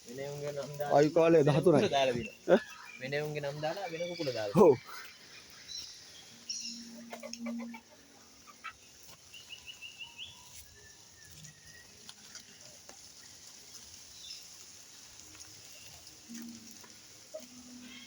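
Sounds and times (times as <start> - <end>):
small birds chirping: 0.0 - 18.0
chickens clucking: 6.6 - 9.5.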